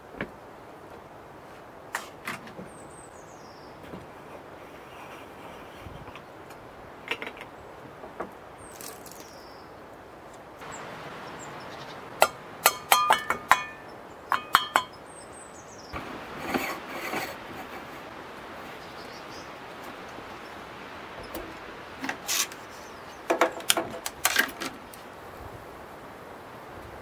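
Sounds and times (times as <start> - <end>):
scraping and rubbing: 4.1 - 6.2, 16.0 - 18.8, 22.0 - 22.9
metallic clinks of moka pot parts: 12.2 - 15.0.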